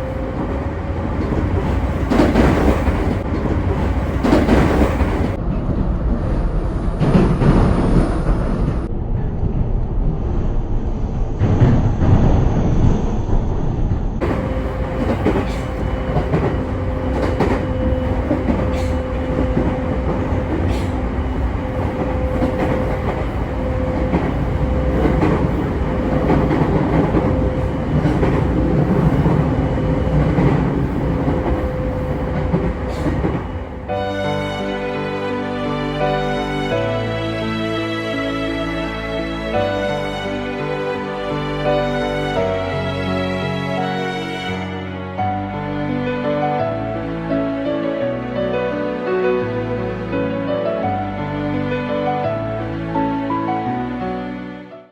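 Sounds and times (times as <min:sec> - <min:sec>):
wheel clacks on rail joints: 0:00.0 - 0:05.4, 0:14.2 - 0:33.9
train rolling rumble: 0:00.0 - 0:34.8.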